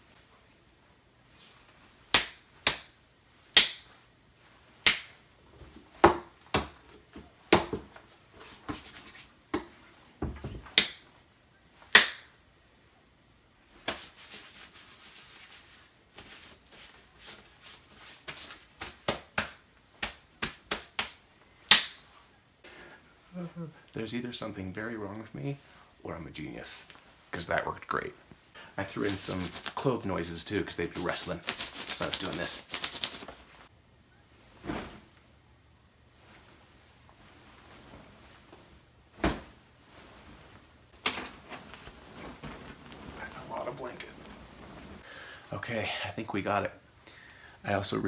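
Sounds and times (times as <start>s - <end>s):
soft rustling: 13.6s - 26.0s, 30.8s - 45.1s.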